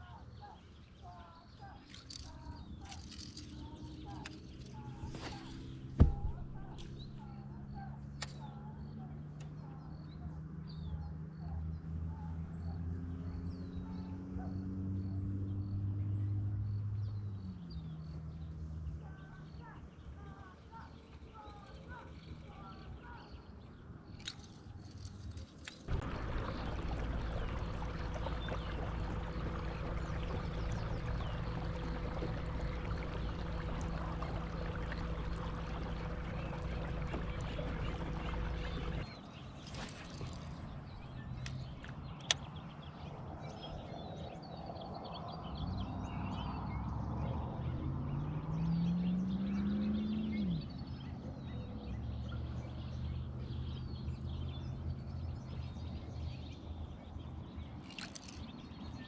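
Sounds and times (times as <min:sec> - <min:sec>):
electric motor humming: 0:25.9 - 0:39.0.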